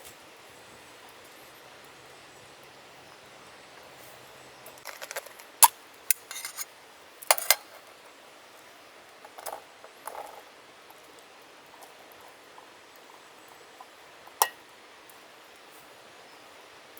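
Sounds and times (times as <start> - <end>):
faint steady hiss: 0.0 - 16.9
containers rattling: 4.8 - 6.6, 7.3 - 7.9
cooking utensils clinking: 4.8 - 6.7, 7.3 - 7.9.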